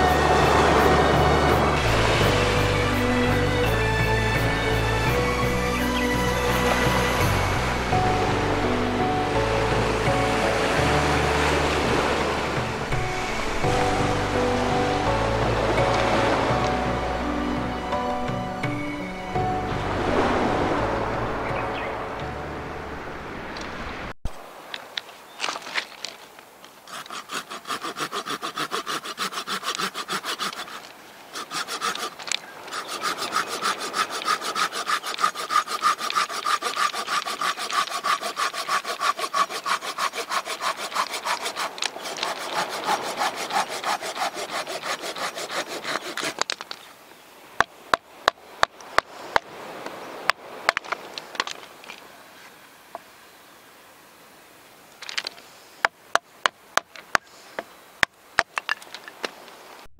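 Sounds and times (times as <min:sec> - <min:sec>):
hand saw cutting wood: 0:00.0 - 0:08.6, 0:26.9 - 0:46.7.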